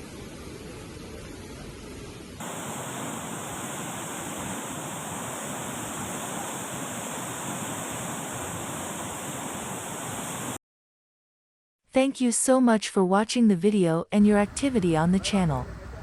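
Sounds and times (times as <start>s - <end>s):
water rushing: 2.4s - 10.6s.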